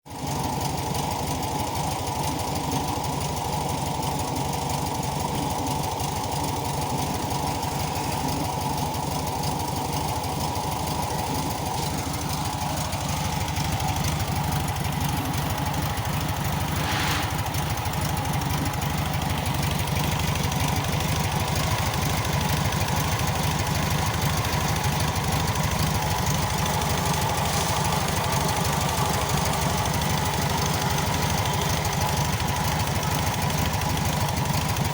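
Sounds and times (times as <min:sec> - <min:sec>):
car engine running: 0:00.1 - 0:34.9
brief hiss: 0:16.6 - 0:17.7.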